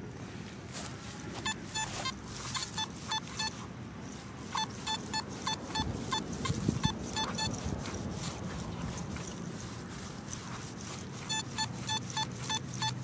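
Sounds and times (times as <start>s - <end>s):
metal detector beeping: 1.4s - 7.6s, 10.3s - 13.0s.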